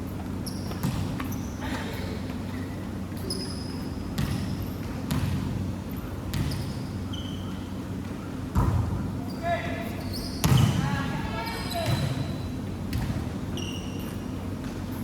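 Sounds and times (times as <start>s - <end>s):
basketballs bouncing on a court: 0.1s - 2.4s, 3.2s - 9.3s, 10.1s - 15.0s
short high squeaks: 13.5s - 14.2s.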